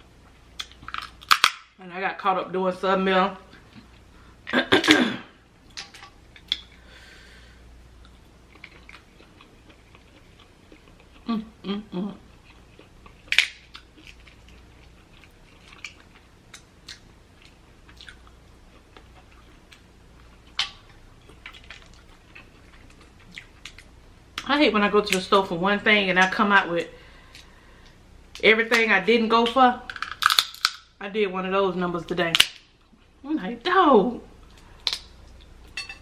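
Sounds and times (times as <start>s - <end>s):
wet chewing and smacking: 8.0s - 11.3s, 12.2s - 24.4s.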